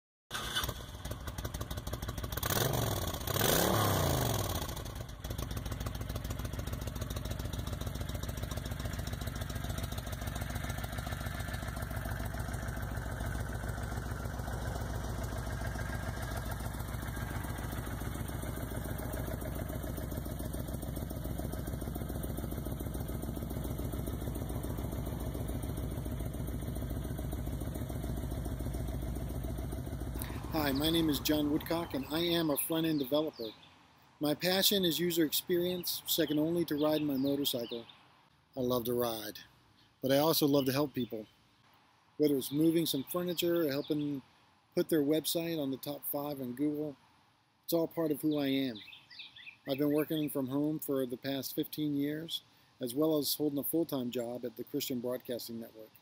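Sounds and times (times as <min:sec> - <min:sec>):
motorcycle engine revving and idling: 0:00.3 - 0:33.6.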